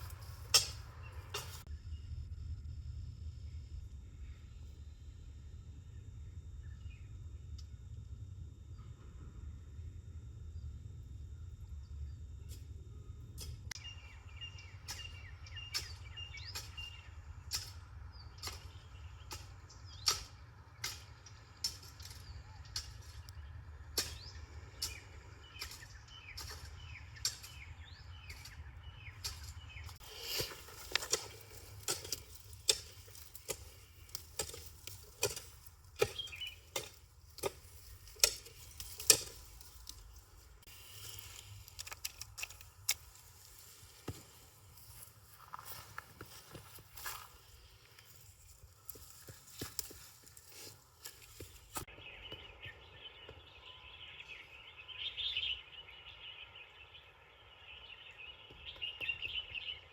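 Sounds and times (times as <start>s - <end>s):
birds chirping: 13.8s - 59.9s.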